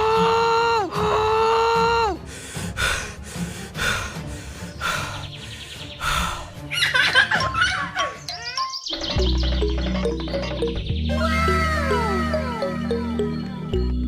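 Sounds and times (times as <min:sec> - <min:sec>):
background music with a beat: 0:08.9 - 0:14.0
long wailing cries: 0:11.2 - 0:13.9.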